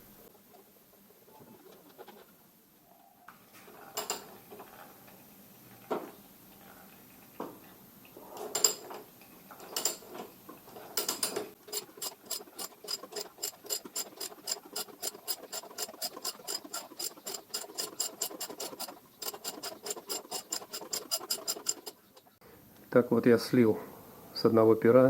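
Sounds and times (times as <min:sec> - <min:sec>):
ratchet wrench clicking: 0:11.6 - 0:22.3.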